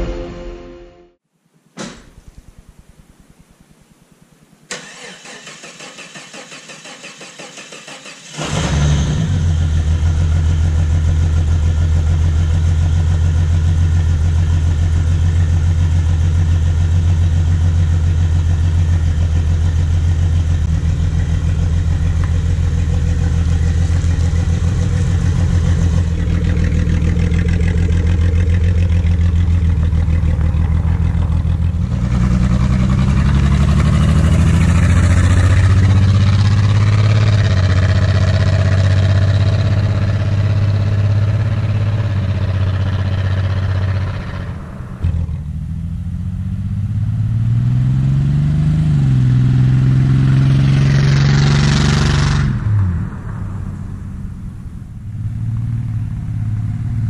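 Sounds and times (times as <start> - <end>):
engine starter cranking: 4.7 - 9.4
loud engine idling: 9.4 - 45.7.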